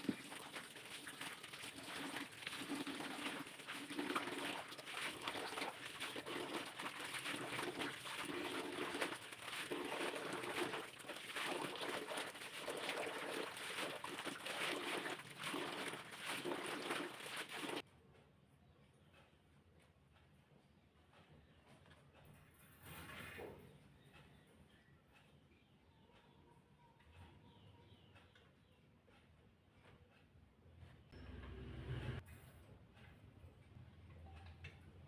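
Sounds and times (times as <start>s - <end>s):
scattered clicks and light clatter: 33.0s - 35.0s.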